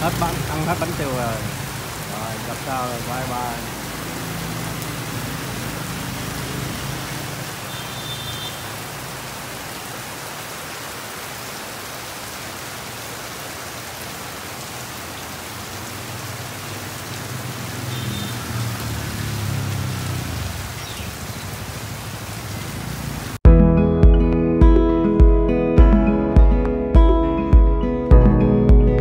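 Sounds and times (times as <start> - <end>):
motorbike engines passing: 0.0 - 10.0, 14.6 - 23.4
heavy rain on awnings: 0.0 - 23.4.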